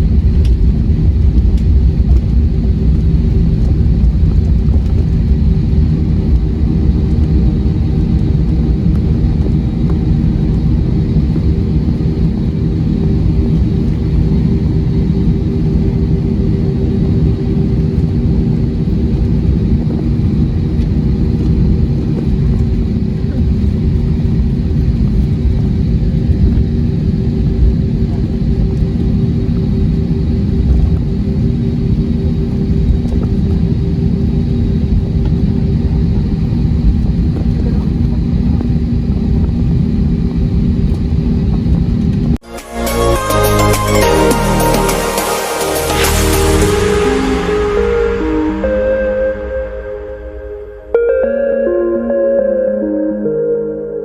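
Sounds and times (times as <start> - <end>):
aircraft cabin engine rumble: 0.0 - 42.4
constant hum: 0.0 - 54.0.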